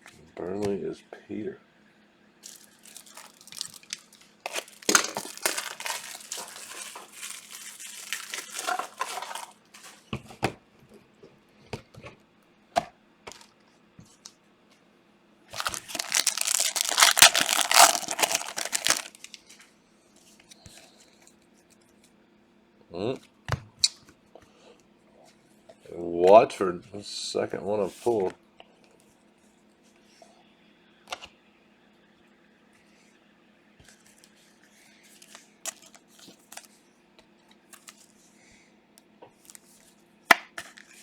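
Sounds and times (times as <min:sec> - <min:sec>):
wrappers tearing and crinkling: 0:02.4 - 0:10.0, 0:15.5 - 0:19.5, 0:35.3 - 0:36.7.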